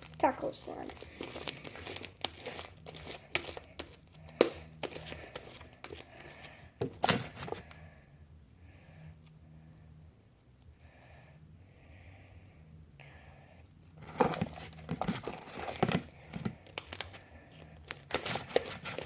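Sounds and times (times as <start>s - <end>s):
slime crackling and popping: 0.0s - 5.6s.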